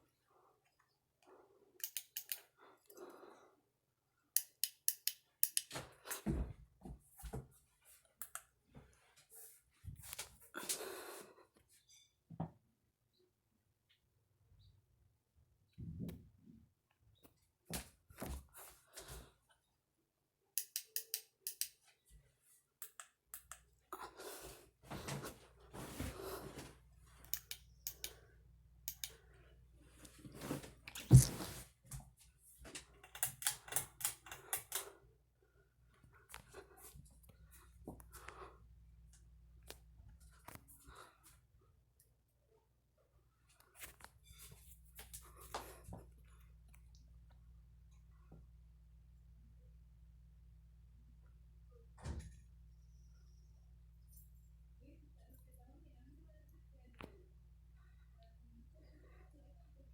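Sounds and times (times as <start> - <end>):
sharp clicks: 20.6 - 21.8
low steady hum: 44.3 - 59.9.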